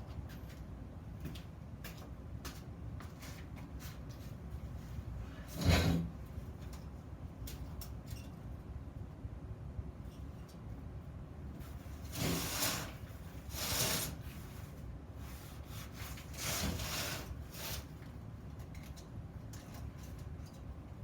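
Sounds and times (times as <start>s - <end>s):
rubbing or scraping strokes: 12.1s - 17.9s.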